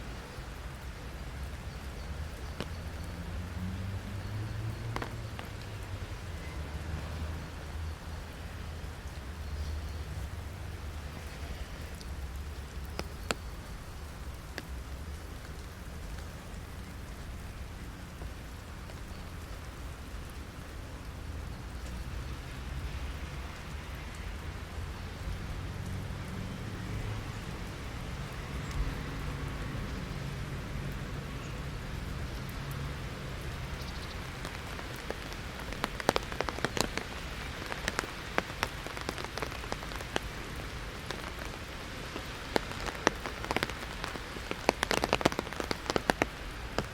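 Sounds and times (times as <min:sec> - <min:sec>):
rain hissing on an umbrella: 0:00.0 - 0:46.9
drops striking an umbrella: 0:04.8 - 0:05.8, 0:33.7 - 0:46.9.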